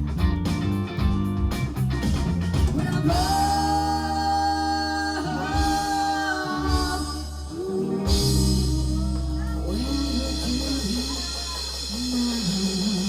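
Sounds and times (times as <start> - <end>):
live band music: 0.0 - 13.0
voices singing held notes: 2.8 - 13.0.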